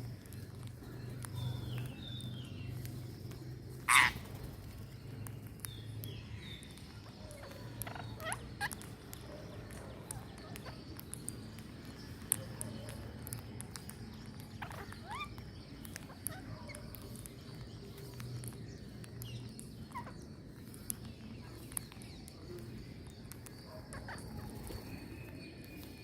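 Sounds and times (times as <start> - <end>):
birds chirping: 0.0 - 26.0
harsh bird call: 3.9 - 4.2.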